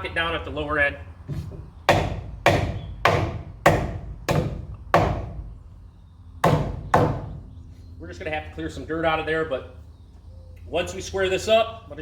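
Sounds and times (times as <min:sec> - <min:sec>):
hammer striking wooden post: 0:01.4 - 0:05.5, 0:06.4 - 0:07.4.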